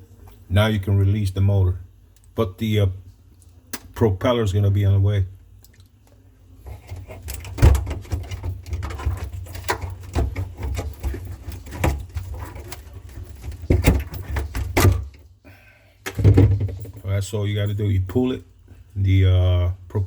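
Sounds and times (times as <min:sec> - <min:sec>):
plastic fan parts clicking and rattling: 0:06.6 - 0:15.2.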